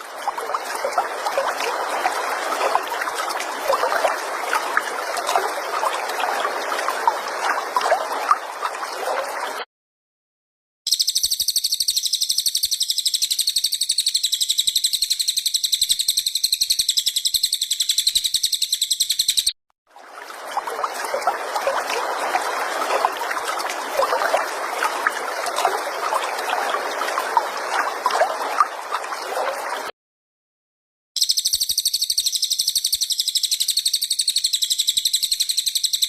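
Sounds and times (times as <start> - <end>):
bird chattering song: 10.9 - 19.5, 31.2 - 36.0.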